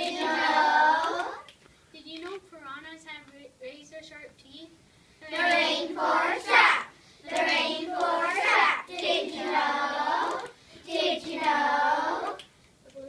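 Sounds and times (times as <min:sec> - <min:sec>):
children singing: 0:00.0 - 0:01.5, 0:05.2 - 0:12.4.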